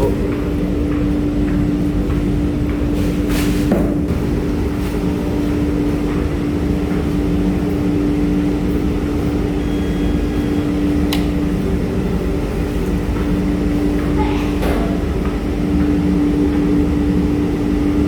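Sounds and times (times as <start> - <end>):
washing machine humming: 0.0 - 18.0.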